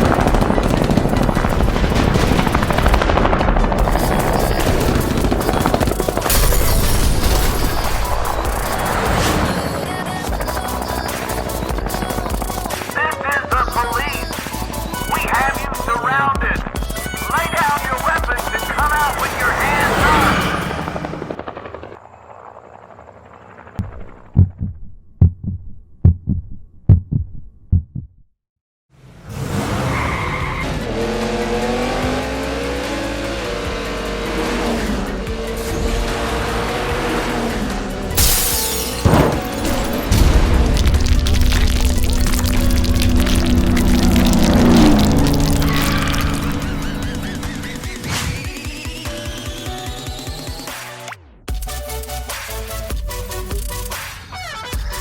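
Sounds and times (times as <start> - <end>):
machine-gun fire: 0.0 - 15.9, 38.1 - 49.3
background music: 0.0 - 21.4, 30.4 - 55.0
helicopter rotor: 0.0 - 24.3, 39.0 - 50.8
heartbeat thumps: 10.3 - 17.6, 23.8 - 28.3.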